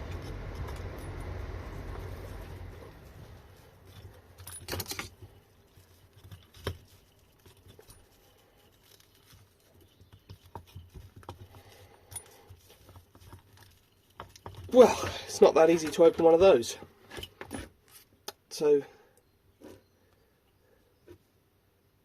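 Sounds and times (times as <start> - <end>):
tools and metal parts rattling: 3.8 - 17.7.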